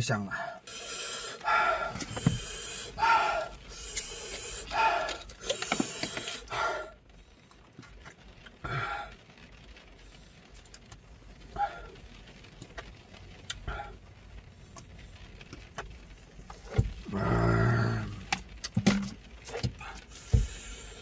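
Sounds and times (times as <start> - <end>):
man gasping sharp breaths: 0.3 - 7.0.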